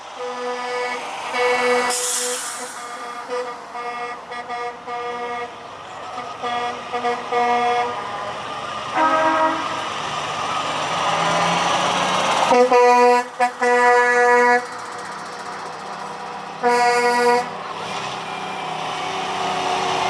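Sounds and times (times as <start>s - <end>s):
engine and road noise: 0.0s - 20.0s
truck horn blasts: 0.1s - 9.9s, 12.5s - 14.8s, 16.6s - 17.6s
second horn different pitch: 0.2s - 8.2s, 8.9s - 9.8s, 12.5s - 14.7s, 16.6s - 17.6s.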